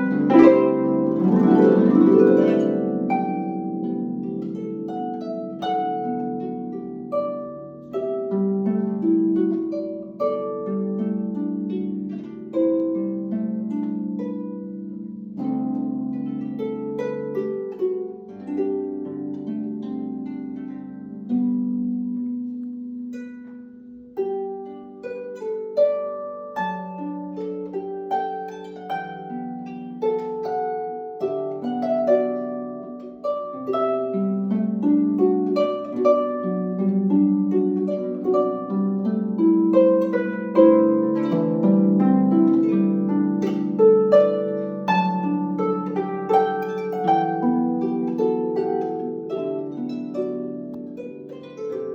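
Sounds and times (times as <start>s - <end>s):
harp playing: 0.0s - 51.9s.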